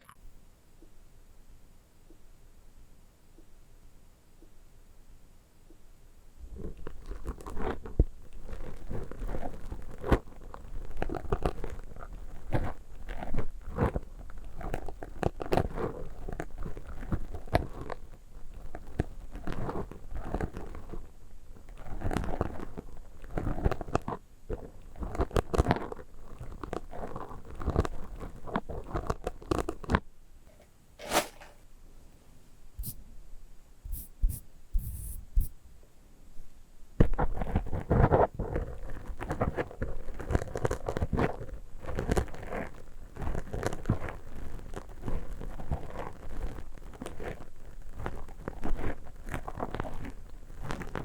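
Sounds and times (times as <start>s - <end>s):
object crunched and crinkled: 6.6s - 31.6s, 37.0s - 51.0s.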